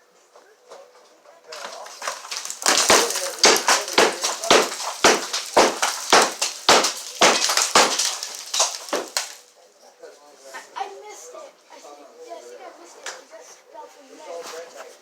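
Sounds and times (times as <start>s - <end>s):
debris crumbling and rattling: 1.5s - 9.4s
hammer striking wall: 1.6s - 9.4s.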